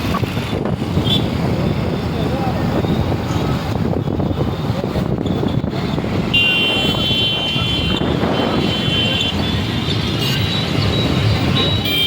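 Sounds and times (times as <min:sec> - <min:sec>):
vehicle road noise rumble: 0:00.0 - 0:12.0
vehicle horn blast: 0:06.3 - 0:09.3.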